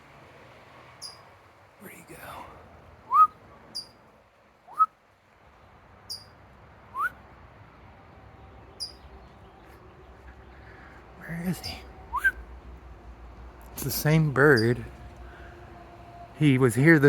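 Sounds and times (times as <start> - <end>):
songbird chirping: 0.8 - 17.0
person whistling: 3.1 - 3.3, 12.1 - 12.4.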